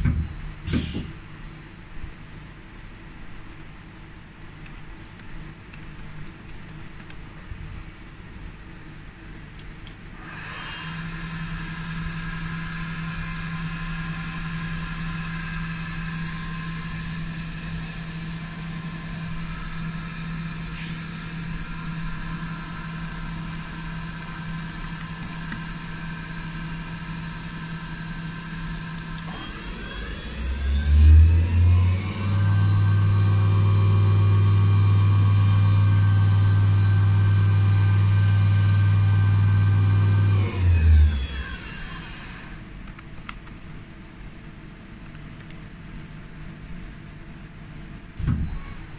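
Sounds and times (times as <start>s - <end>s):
lathe machine whine: 10.1s - 42.6s
loud low hum: 10.1s - 42.6s.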